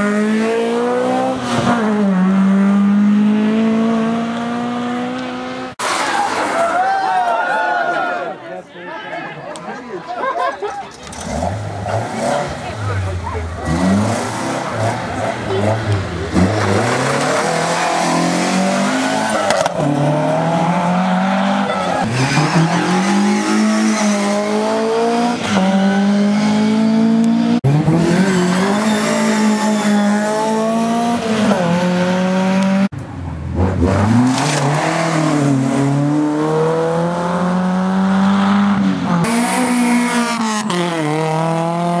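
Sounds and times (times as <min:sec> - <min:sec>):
rally car engines revving hard: 0:00.0 - 0:06.5, 0:11.0 - 0:42.0.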